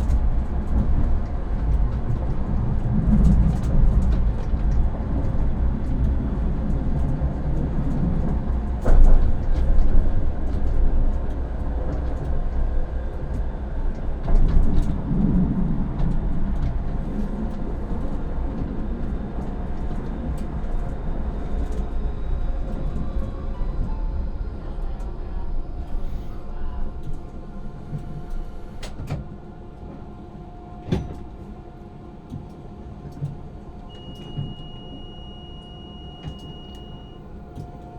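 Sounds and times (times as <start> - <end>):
tram wheels rumbling on rail: 0.0 - 37.9
faint high whine: 33.9 - 37.3.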